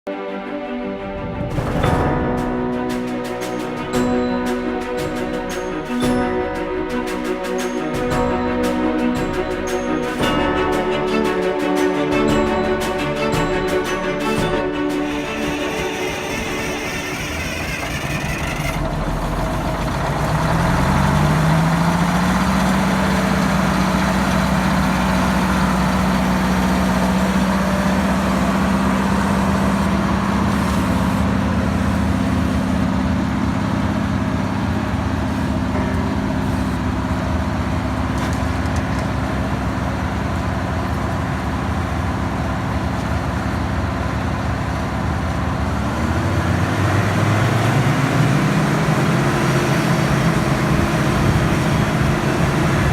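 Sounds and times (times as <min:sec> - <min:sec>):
drill rig diesel engine revving: 0:11.0 - 0:52.9.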